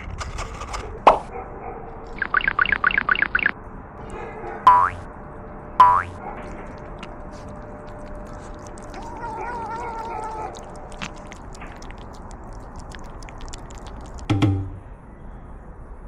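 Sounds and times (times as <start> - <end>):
crunchy chewing clicks: 2.0 - 5.1, 5.8 - 14.4
cat meowing: 8.0 - 13.8.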